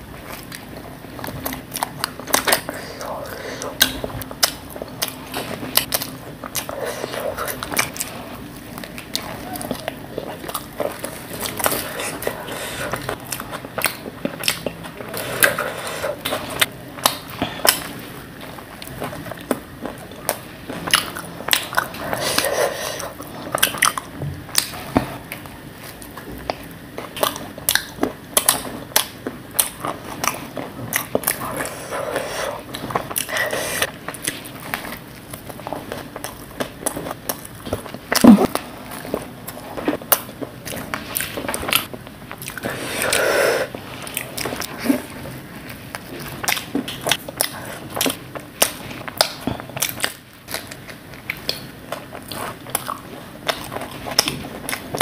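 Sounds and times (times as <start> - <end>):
crunchy chewing: 0.0 - 55.0
wet mouth sounds: 37.9 - 38.6.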